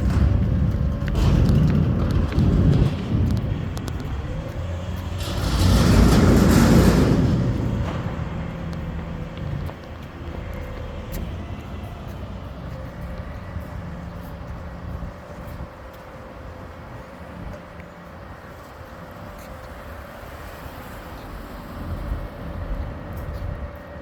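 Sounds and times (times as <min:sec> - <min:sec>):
garbage truck engine running: 0:00.0 - 0:15.4.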